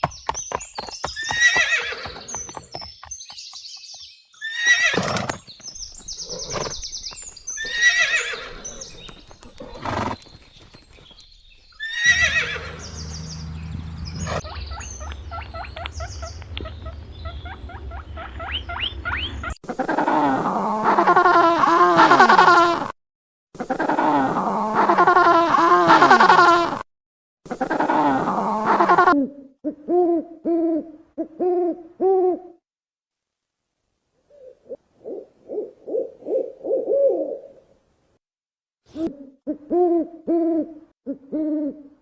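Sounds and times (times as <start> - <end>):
hooves clip-clopping: 0.0 - 4.2, 8.6 - 11.7
horses neighing: 1.2 - 2.3, 4.4 - 5.4, 7.6 - 10.4, 11.8 - 14.4.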